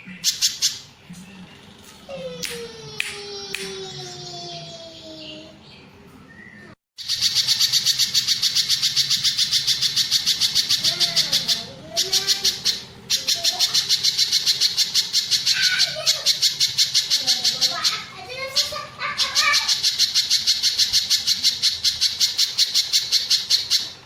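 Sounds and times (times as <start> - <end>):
bird chattering song: 0.0 - 1.1, 4.0 - 24.0.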